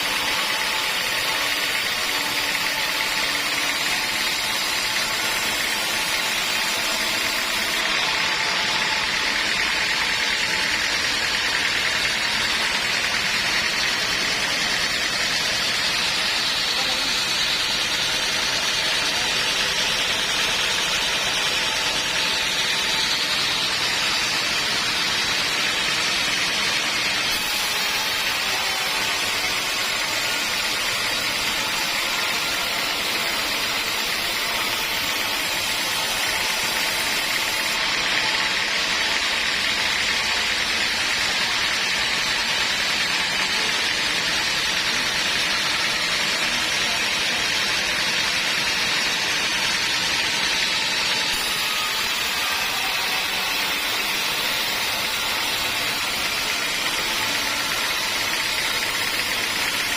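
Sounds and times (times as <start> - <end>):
band sawmill cutting log: 0.0 - 59.9.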